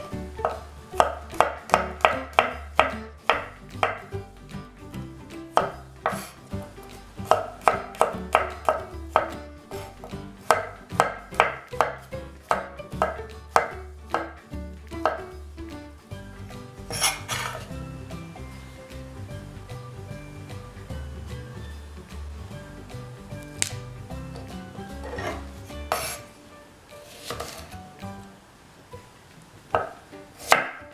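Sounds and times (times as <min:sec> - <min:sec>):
knife tapping cutting board: 0:00.1 - 0:04.1, 0:05.5 - 0:15.4, 0:23.4 - 0:26.2, 0:29.7 - 0:30.9
knife scraping board: 0:05.6 - 0:06.5, 0:16.9 - 0:17.8, 0:25.0 - 0:26.4, 0:27.0 - 0:27.8, 0:29.8 - 0:30.8.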